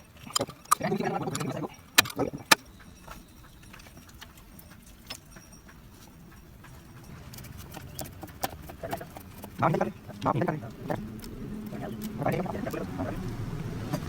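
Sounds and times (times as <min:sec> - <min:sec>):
handling noises: 0:00.0 - 0:14.0
metal hand tools clinking: 0:00.0 - 0:14.0
sharp clicks: 0:00.2 - 0:05.3.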